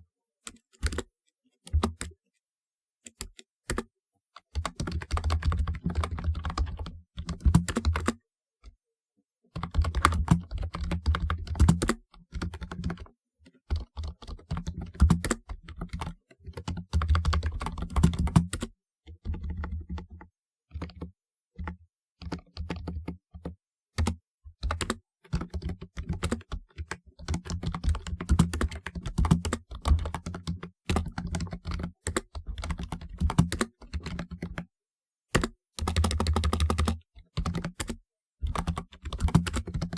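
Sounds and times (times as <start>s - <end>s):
keyboard key clicks: 35.3s - 38.0s.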